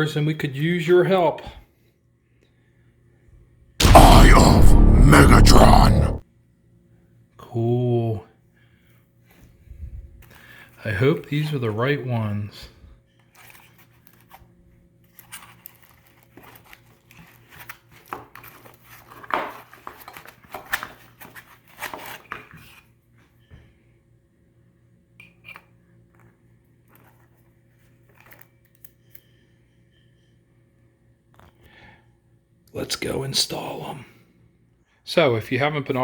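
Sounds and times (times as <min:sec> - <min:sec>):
packaging crinkling and rustling: 0:15.1 - 0:21.6.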